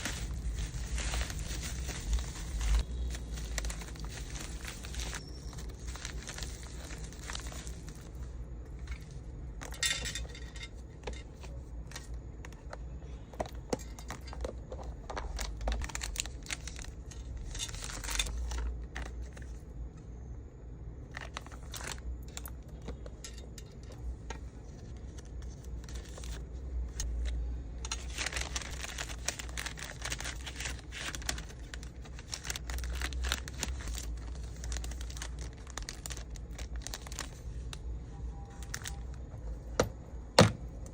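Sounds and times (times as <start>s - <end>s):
plastic packaging crinkling: 0.0s - 12.8s, 13.4s - 19.6s, 21.0s - 37.8s, 38.5s - 39.6s
plastic items clicking together: 13.4s - 19.4s.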